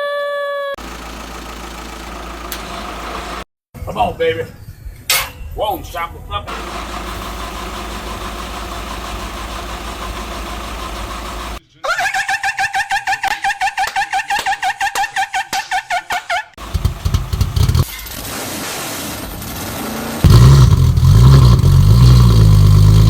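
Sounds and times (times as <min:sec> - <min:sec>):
engine catching with loud burst: 0:00.8 - 0:03.5, 0:06.5 - 0:11.6, 0:16.6 - 0:23.0
engine running: 0:00.8 - 0:03.5, 0:06.5 - 0:11.6, 0:16.6 - 0:17.9, 0:20.2 - 0:23.0
starter motor cranking: 0:06.5 - 0:11.6, 0:16.6 - 0:17.9, 0:20.2 - 0:23.0.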